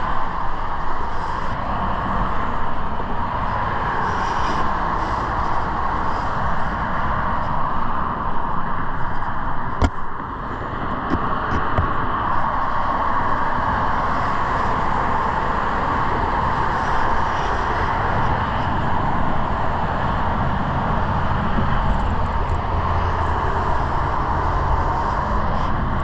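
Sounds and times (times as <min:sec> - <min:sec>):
highway traffic roar: 0:00.0 - 0:26.0.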